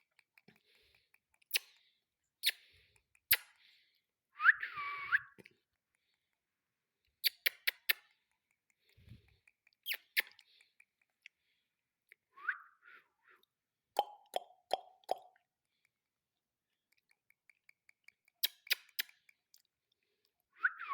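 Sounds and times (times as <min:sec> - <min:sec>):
parakeet chirp: 0:09.8 - 0:10.4.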